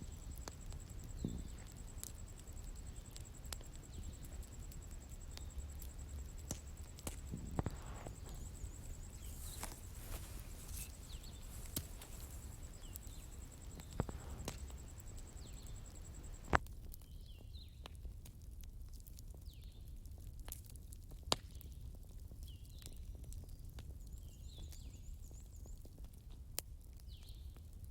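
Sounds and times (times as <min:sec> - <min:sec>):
high insect trill: 0:00.0 - 0:16.6
fire rumbling: 0:00.0 - 0:17.2
fire crackling and popping: 0:00.0 - 0:27.9
small birds chirping: 0:02.6 - 0:17.8.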